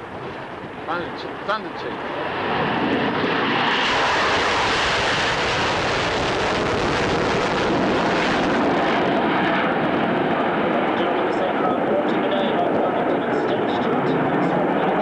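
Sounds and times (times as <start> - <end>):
aircraft roaring past: 0.0 - 15.0.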